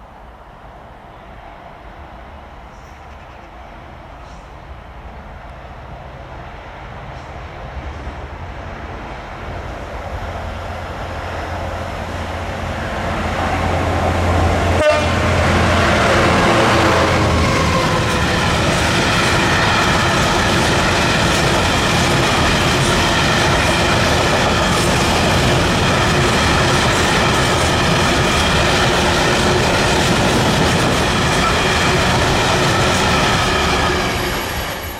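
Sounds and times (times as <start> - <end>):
diesel locomotive engine passing: 0.1 - 34.9.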